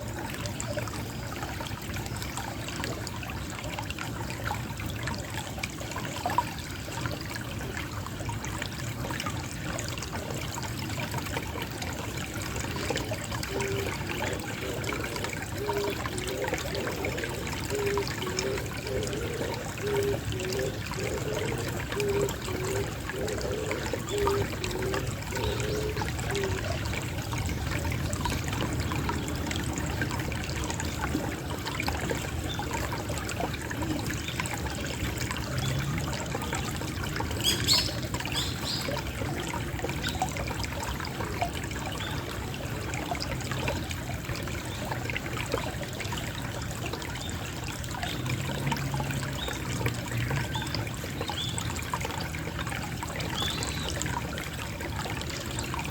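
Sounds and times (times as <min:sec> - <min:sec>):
water trickling: 0:00.0 - 0:55.9
pigeon cooing: 0:12.8 - 0:26.8.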